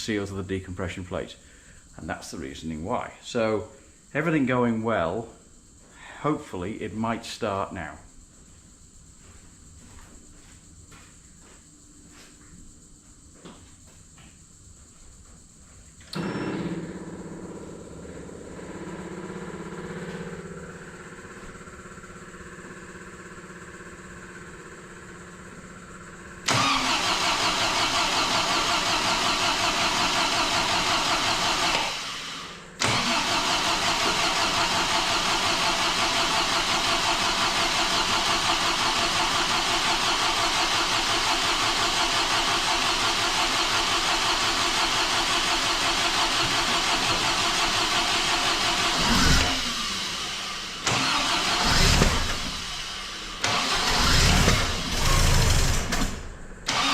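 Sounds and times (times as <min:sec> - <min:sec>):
faint hum: 0:00.0 - 0:26.5
car engine cranking and running: 0:16.1 - 0:56.9.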